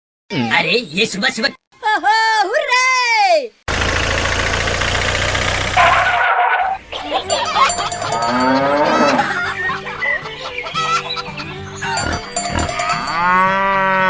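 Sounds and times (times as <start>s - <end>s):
chickens clucking: 6.7s - 13.0s
background music: 7.3s - 14.0s.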